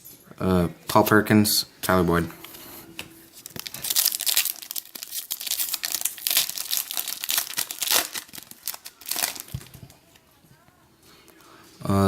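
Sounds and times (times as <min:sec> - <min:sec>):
foil wrapper tearing and crinkling: 0:03.4 - 0:10.0.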